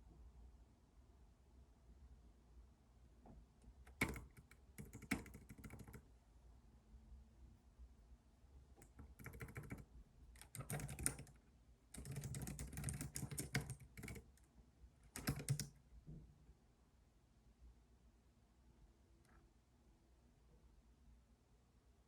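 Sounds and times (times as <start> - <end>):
keyboard typing: 3.9 - 6.0, 8.8 - 11.4, 12.0 - 14.4, 15.0 - 15.7.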